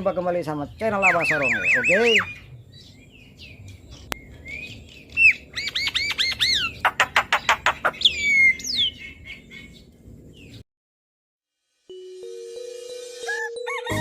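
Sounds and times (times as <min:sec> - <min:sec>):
bird singing whistles and rattle: 0:00.7 - 0:03.0, 0:03.7 - 0:09.1.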